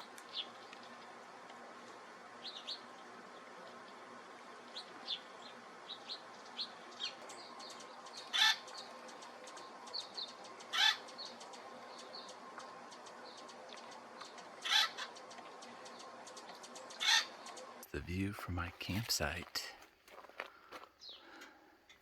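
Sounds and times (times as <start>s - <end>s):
harsh bird calls: 2.2s - 19.7s.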